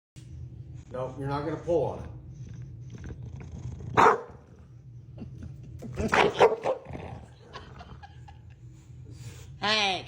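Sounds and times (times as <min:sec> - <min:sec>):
dog barking: 0:04.0 - 0:04.4, 0:06.2 - 0:06.8.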